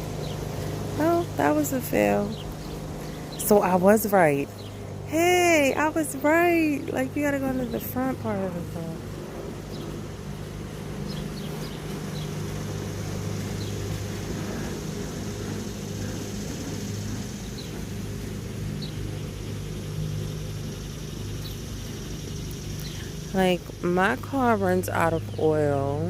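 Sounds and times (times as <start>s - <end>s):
low motor hum: 0.0s - 26.0s.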